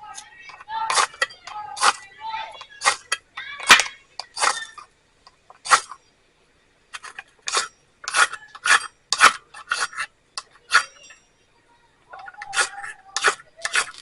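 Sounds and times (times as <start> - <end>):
steel striker rasping on flint: 0.1 - 6.0, 6.9 - 11.2, 12.1 - 14.0.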